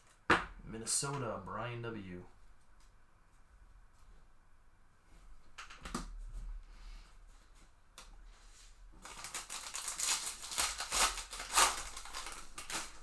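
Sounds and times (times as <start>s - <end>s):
foil wrapper crackling: 9.0s - 13.0s.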